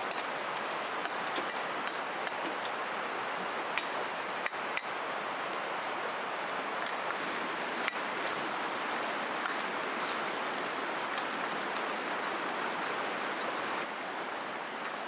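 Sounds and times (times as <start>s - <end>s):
river flowing: 0.0s - 15.0s.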